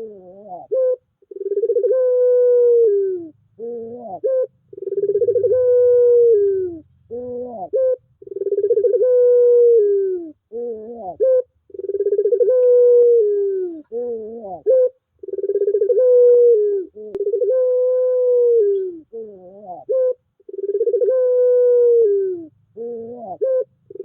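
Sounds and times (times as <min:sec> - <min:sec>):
dove cooing: 0:00.0 - 0:24.0.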